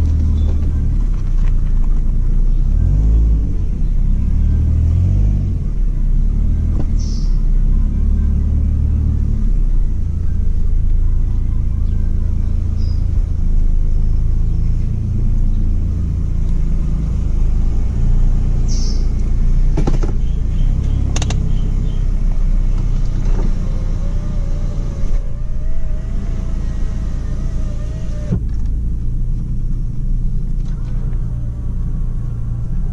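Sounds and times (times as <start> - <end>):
car engine running: 0.0 - 32.9
sharp clicks: 20.8 - 21.5.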